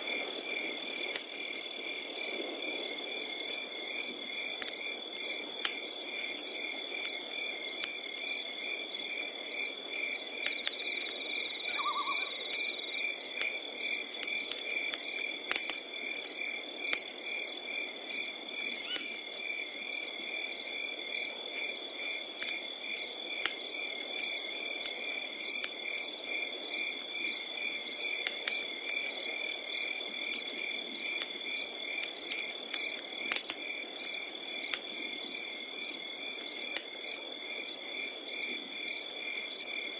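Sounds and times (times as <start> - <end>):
campfire crackling and popping: 0.0 - 39.9
continuous high insect trill: 0.0 - 39.9
crickets chirping: 0.0 - 39.9.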